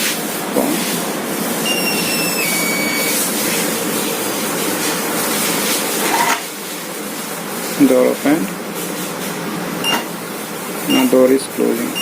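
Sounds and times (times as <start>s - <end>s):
high electronic tone: 1.6s - 3.3s.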